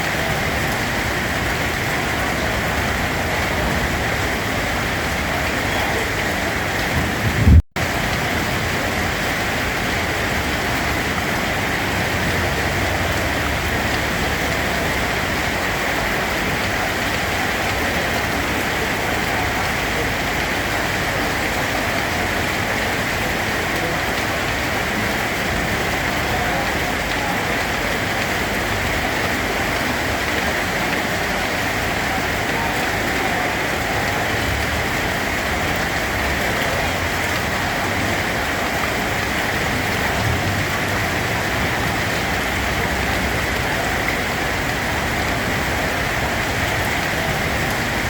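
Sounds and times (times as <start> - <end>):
steady rain: 0.0 - 48.0
low rumble: 6.9 - 7.6
loud low thump: 7.0 - 7.6.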